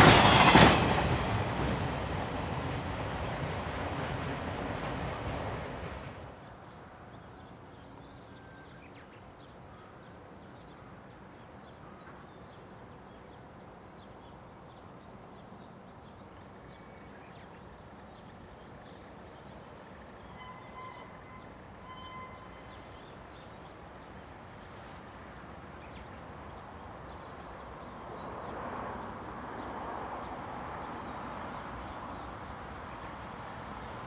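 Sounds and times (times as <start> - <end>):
train rumble: 0.0 - 6.6.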